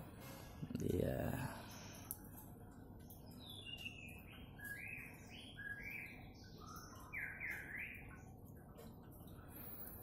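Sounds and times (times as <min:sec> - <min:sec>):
bird chirping: 0:03.0 - 0:10.0.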